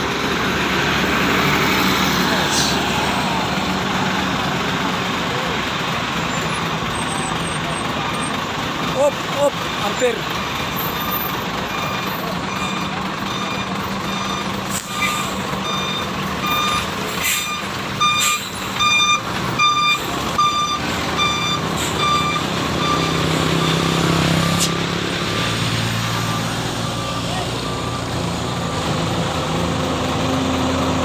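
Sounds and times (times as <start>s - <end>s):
diesel truck engine running: 0.0s - 31.0s
reversing alarm beeping: 10.9s - 23.9s.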